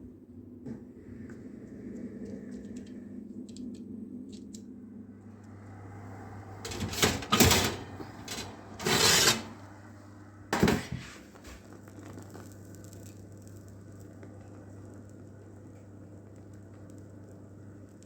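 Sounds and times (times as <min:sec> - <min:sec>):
kitchen clattering knocks: 0:06.6 - 0:09.5, 0:10.6 - 0:11.2
scraping rustle: 0:06.6 - 0:09.6.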